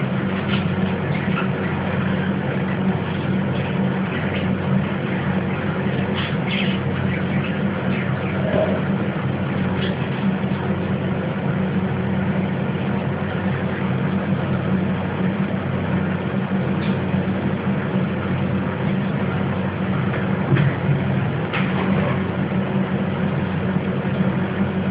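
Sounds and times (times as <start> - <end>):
mechanical drone and hiss: 0.0 - 24.9.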